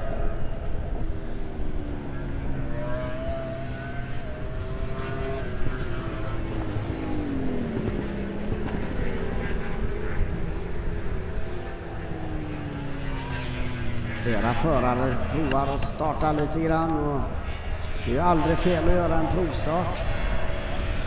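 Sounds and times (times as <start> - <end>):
racing motorcycle engines: 0.0 - 21.0.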